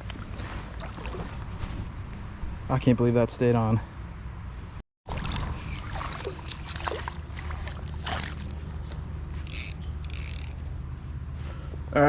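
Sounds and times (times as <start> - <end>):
creek water splashing: 0.0 - 1.6, 5.1 - 10.4
low water rumble: 0.0 - 2.8, 4.7 - 10.2.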